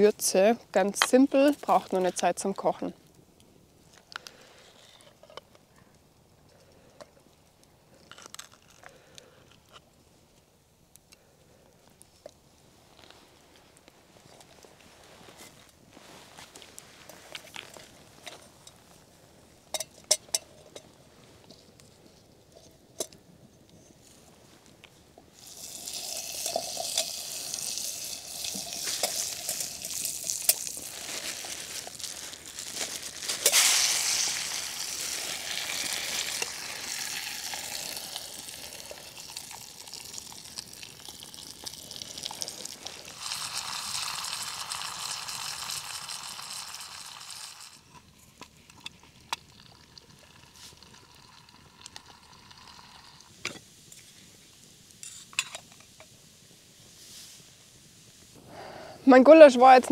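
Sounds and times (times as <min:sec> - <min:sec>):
meat sizzling in a pot: 0:25.4 - 0:48.1, 0:48.7 - 0:58.1.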